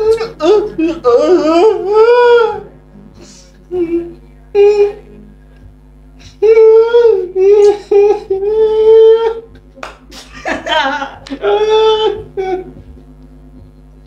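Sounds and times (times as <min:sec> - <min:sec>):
person wailing: 0:00.0 - 0:02.7, 0:03.7 - 0:05.2, 0:06.2 - 0:09.6, 0:10.4 - 0:12.8.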